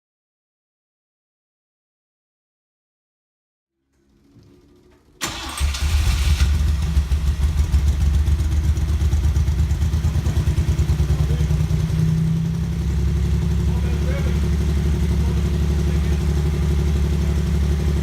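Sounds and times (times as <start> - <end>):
car engine starting and running: 3.9 - 18.0.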